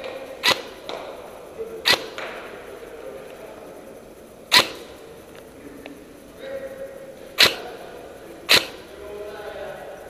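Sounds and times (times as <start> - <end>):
airsoft gun shots: 0.4 - 1.2, 1.8 - 2.5, 4.5 - 5.0, 7.4 - 7.7, 8.5 - 8.9.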